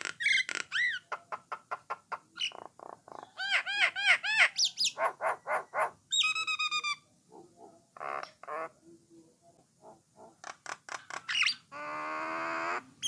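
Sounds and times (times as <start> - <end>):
starling singing: 2.0 - 7.0.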